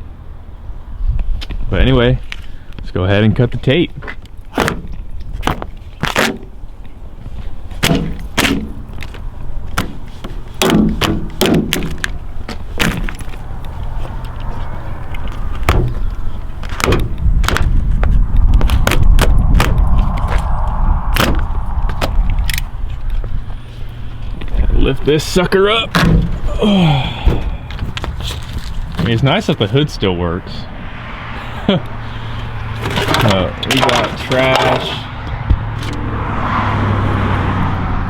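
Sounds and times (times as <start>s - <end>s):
tape cracking and snapping: 4.2s - 6.6s, 15.1s - 17.8s, 18.4s - 20.5s
low steady rumble: 12.0s - 29.3s.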